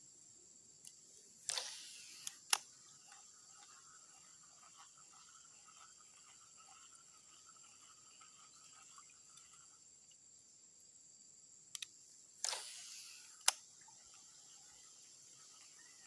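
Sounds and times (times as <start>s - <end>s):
insects chirring: 0.0s - 16.0s
quick clicks: 0.8s - 4.9s, 11.7s - 14.6s.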